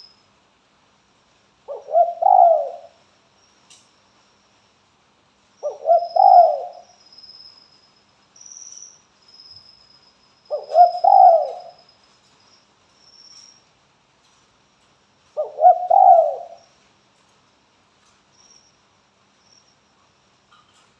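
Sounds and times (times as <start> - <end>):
dove cooing: 1.7 - 3.0, 5.6 - 6.9, 10.5 - 11.8, 15.4 - 16.6.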